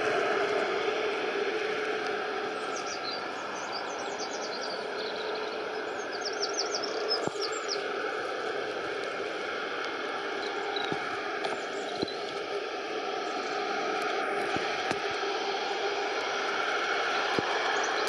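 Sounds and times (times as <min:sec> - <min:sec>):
background hiss: 0:00.0 - 0:18.0
small bird chirping: 0:02.7 - 0:07.8.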